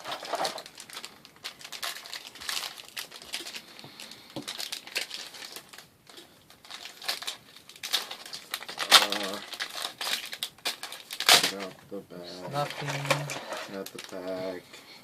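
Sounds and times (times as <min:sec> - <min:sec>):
foil wrappers crinkling: 0:00.0 - 0:14.6.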